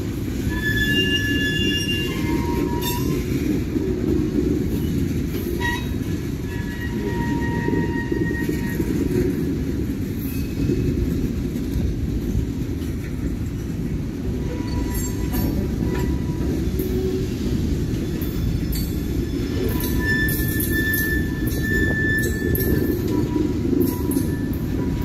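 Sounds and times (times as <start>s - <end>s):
train wheels rumbling on rail: 0.0s - 25.0s
high wheel squeal: 0.4s - 3.4s, 5.6s - 9.0s, 14.4s - 25.0s.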